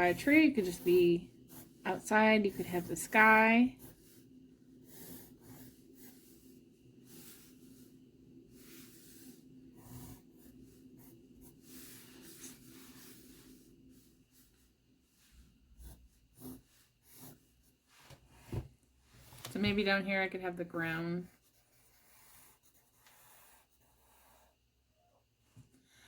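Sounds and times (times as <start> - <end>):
steady low hum: 0.0 - 17.8
pencil scratching on paper: 0.0 - 18.5, 20.8 - 24.6.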